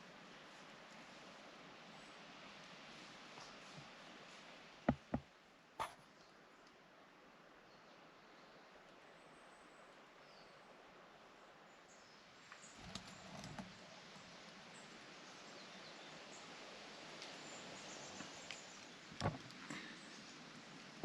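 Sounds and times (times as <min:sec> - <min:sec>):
soft thumps and clicks: 0:04.9 - 0:06.0, 0:19.2 - 0:19.6.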